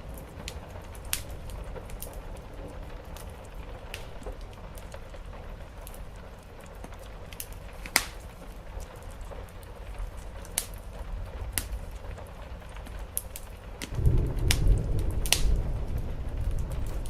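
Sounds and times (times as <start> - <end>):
wood fire crackling: 0.0 - 17.0
low rumble: 13.9 - 17.0.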